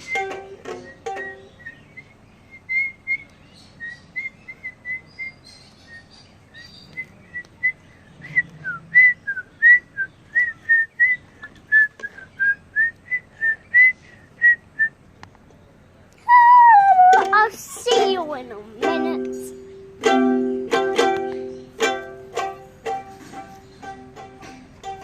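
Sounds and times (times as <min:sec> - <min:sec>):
person whistling a tune: 0:00.0 - 0:05.1, 0:08.6 - 0:14.9, 0:16.3 - 0:17.2.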